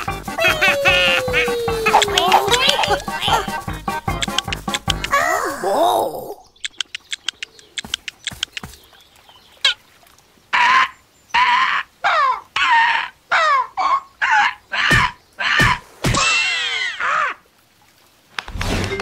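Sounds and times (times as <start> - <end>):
cartoon bird squawking: 0.0 - 5.6.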